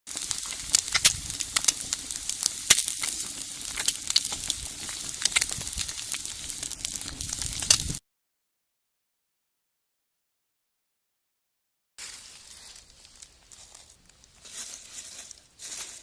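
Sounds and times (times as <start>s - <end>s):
food sizzling: 0.0s - 8.0s
wood fire crackling and popping: 0.1s - 8.0s, 12.0s - 15.4s.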